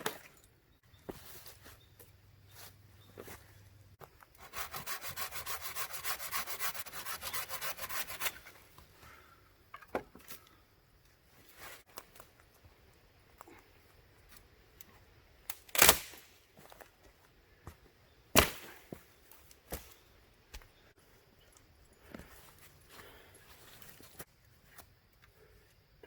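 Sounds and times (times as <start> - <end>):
hand tool scraping wood: 4.4 - 8.7.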